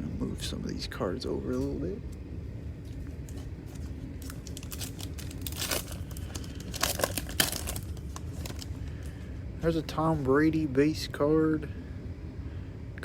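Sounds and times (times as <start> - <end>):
trading cards being handled: 2.8 - 9.2
cellophane wrapper crinkling: 2.9 - 9.2.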